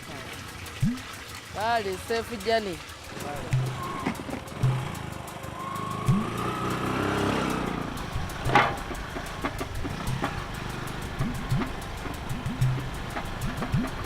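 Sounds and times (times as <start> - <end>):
vehicle engine pulling away: 3.2 - 14.0.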